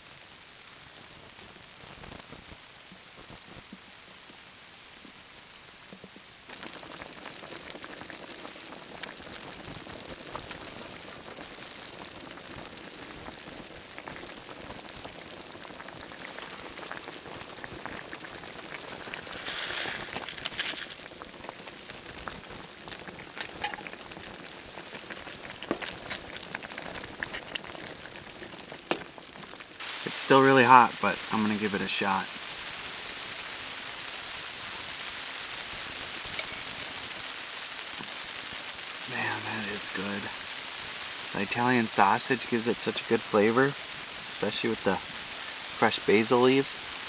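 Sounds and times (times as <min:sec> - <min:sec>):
food simmering in a pan: 0:00.0 - 0:47.0
scraping in a pan: 0:18.8 - 0:21.1.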